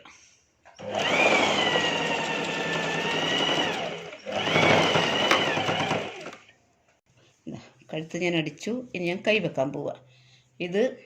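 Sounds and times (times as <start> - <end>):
sewing machine stitching: 0.8 - 6.5.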